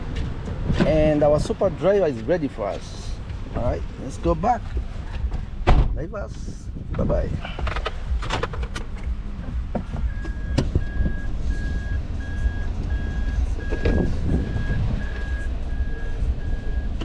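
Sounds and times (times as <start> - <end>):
truck engine rumbling: 0.0 - 17.0
reversing alarm beeping: 10.0 - 17.0.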